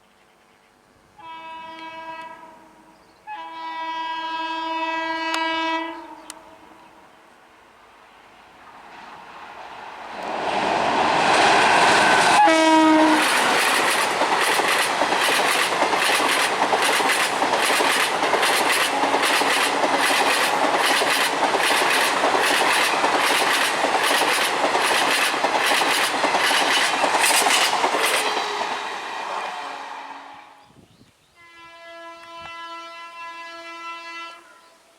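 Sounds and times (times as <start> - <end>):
train horn blast: 1.1 - 7.1, 11.8 - 13.7, 16.3 - 21.8, 28.0 - 30.8, 31.4 - 34.9
train passing at speed: 6.6 - 30.8
wheels clattering over rail joints: 13.3 - 28.2.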